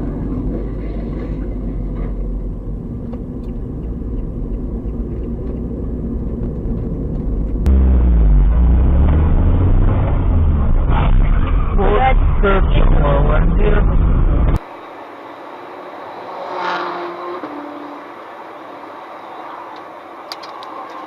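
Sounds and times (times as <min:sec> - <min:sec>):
deeper engine rumble: 0:00.0 - 0:16.2
car engine and road noise: 0:00.0 - 0:21.0.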